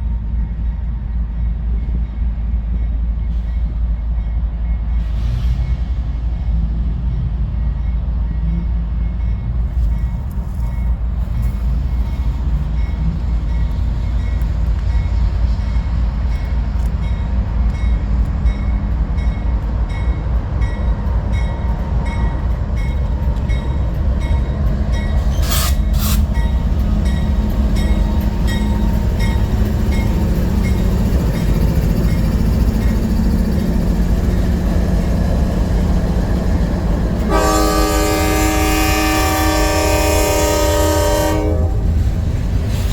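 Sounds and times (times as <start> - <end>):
train rumbling past: 0.0 - 42.9
wheels clicking over rail joints: 23.2 - 35.1
locomotive air horn chord: 37.2 - 41.9.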